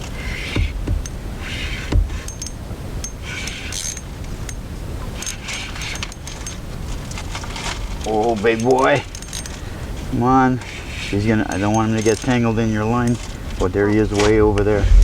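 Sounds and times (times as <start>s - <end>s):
low knock: 0.6s - 1.1s, 1.9s - 2.2s.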